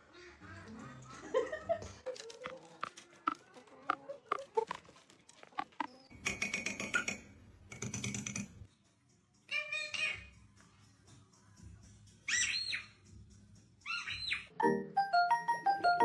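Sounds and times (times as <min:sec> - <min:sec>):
parrot harsh squawks: 0:09.5 - 0:10.3.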